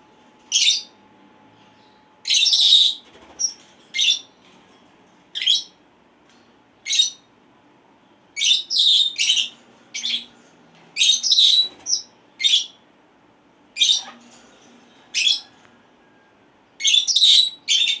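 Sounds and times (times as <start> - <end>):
parrots calling: 8.4 - 10.4, 11.0 - 12.8, 13.8 - 14.4, 15.0 - 15.6, 16.8 - 18.0.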